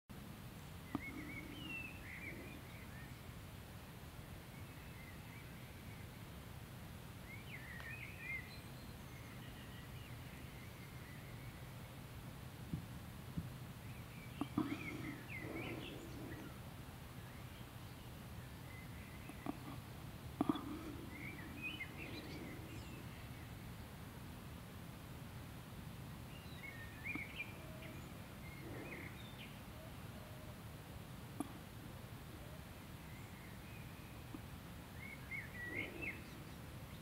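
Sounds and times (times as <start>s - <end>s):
low background noise: 0.1s - 37.0s
birds chirping: 0.6s - 3.4s, 13.8s - 24.0s, 26.2s - 30.6s, 31.3s - 37.0s
faint clicks: 0.8s - 1.7s, 7.7s - 8.0s, 31.4s - 31.7s.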